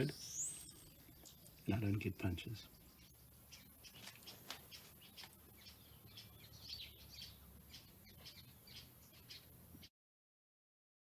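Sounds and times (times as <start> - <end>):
faint bird chirps: 0.0 - 9.9.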